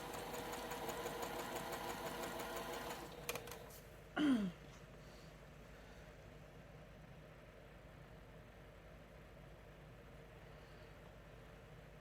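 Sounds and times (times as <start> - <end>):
sewing machine stitching: 0.0 - 3.6.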